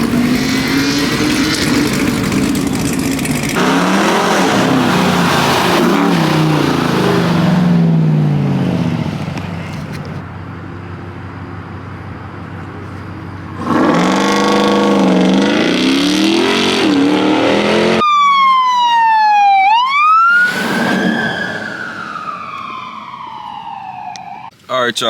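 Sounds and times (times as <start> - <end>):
car engine revving: 0.0 - 10.2, 10.9 - 18.0
siren wailing: 13.8 - 24.5
burst of noise: 20.2 - 24.1.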